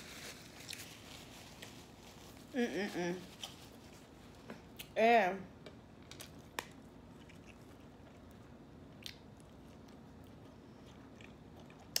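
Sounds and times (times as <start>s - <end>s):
mouth chewing food: 6.2s - 12.0s.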